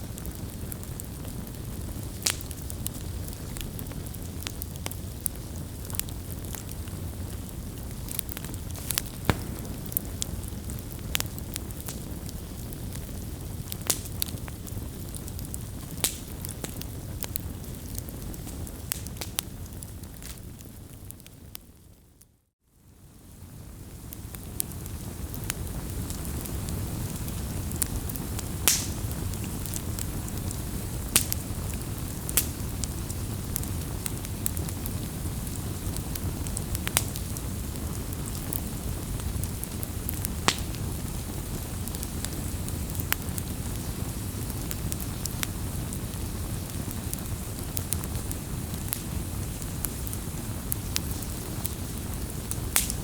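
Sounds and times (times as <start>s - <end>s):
flames rumbling: 0.0s - 21.7s, 22.9s - 53.0s
fire crackles and pops: 0.0s - 53.0s.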